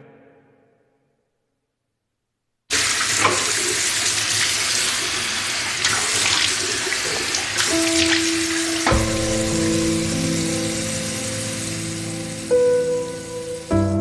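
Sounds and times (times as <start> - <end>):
steady hissing noise: 2.7 - 13.8.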